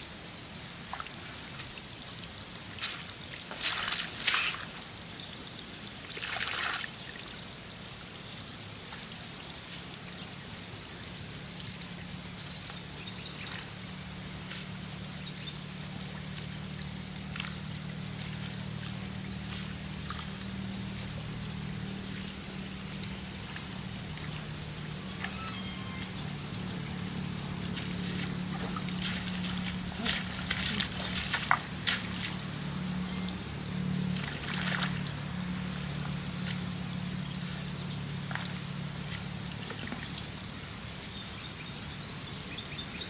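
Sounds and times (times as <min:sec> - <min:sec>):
water splashing and trickling: 0:06.0 - 0:07.5, 0:11.4 - 0:40.6
low steady hum: 0:07.8 - 0:43.0
high-pitched whine: 0:15.2 - 0:41.2.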